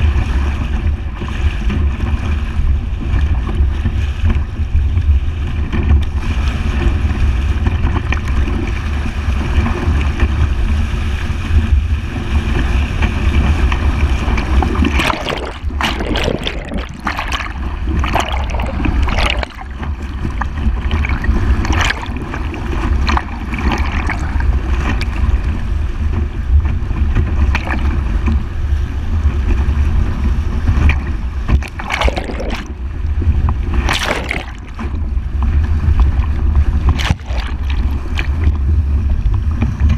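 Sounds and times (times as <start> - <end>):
water rushing against vehicle: 0.0 - 39.9
loud splashes: 13.9 - 25.3, 30.9 - 33.0, 33.6 - 35.1, 36.0 - 38.6.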